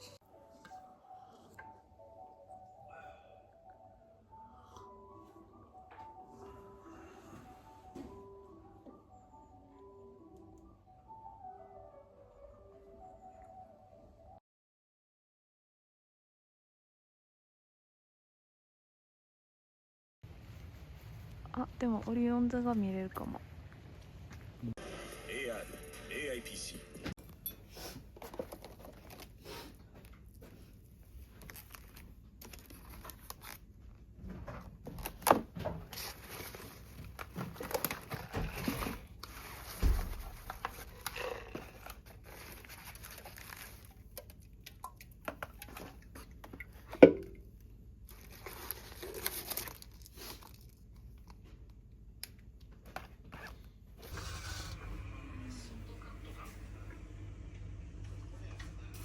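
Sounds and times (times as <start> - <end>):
rustling and crinkling: 28.0 - 47.0, 48.0 - 51.8.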